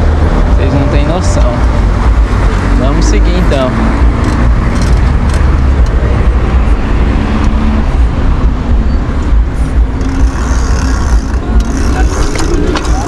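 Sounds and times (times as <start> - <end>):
road traffic: 0.0 - 13.0
fluttering low rumble: 3.8 - 13.0.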